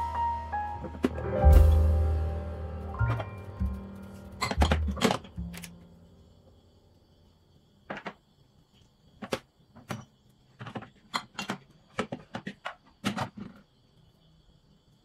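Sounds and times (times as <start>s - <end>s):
bottles and containers knocking: 4.4s - 5.7s.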